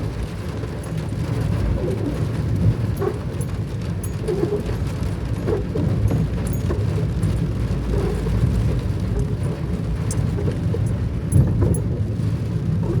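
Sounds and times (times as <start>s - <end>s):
rain falling: 0.0s - 13.0s
drops ticking: 1.8s - 12.2s.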